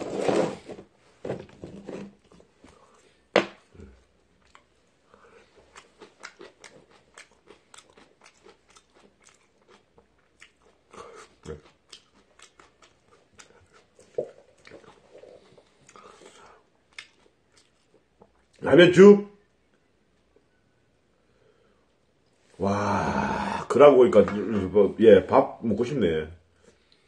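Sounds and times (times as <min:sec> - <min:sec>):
person chewing noodles: 0:03.8 - 0:18.6.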